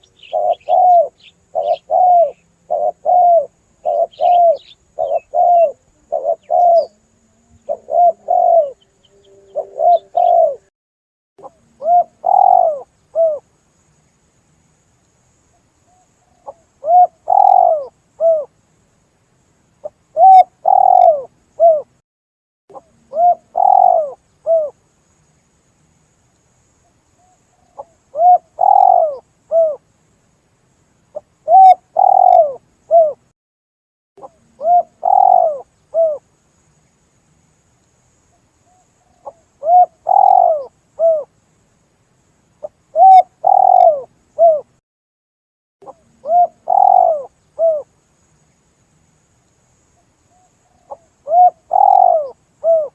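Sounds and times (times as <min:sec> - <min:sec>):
dove cooing: 0:00.0 - 0:10.7, 0:11.4 - 0:13.4, 0:16.4 - 0:18.5, 0:19.8 - 0:21.9, 0:22.7 - 0:24.8, 0:27.6 - 0:29.8, 0:31.4 - 0:33.2, 0:34.2 - 0:36.2, 0:38.7 - 0:41.3, 0:42.9 - 0:44.7, 0:45.8 - 0:47.9, 0:50.6 - 0:52.9.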